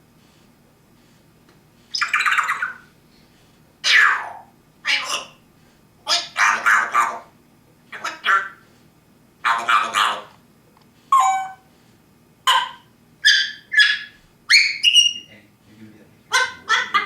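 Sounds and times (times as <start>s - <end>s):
parrot calling loudly: 1.9s - 2.9s, 3.8s - 5.4s, 6.0s - 7.3s, 7.9s - 8.6s, 9.4s - 10.3s, 11.1s - 11.7s, 12.5s - 15.3s, 16.3s - 17.0s.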